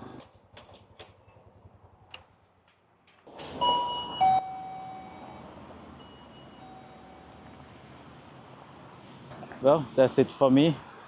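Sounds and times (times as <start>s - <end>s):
two-note electronic door chime: 3.6s - 7.5s.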